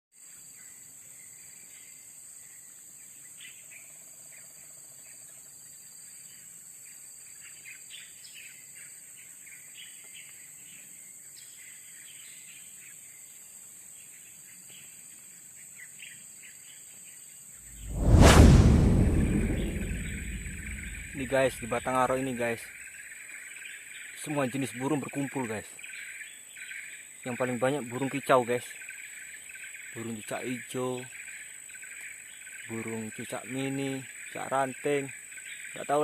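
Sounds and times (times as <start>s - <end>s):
loud rush of noise: 17.8s - 22.2s.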